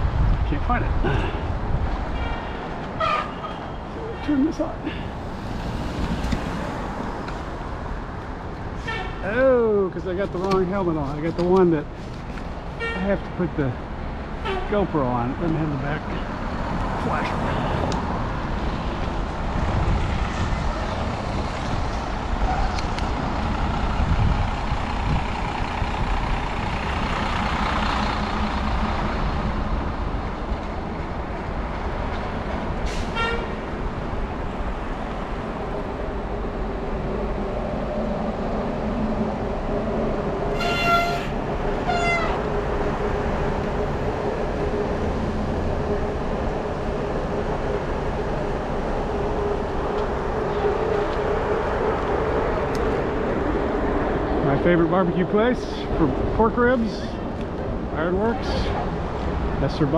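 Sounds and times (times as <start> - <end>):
street traffic: 0.0 - 59.9
wind: 0.0 - 59.9
brief horn toots: 40.5 - 42.4.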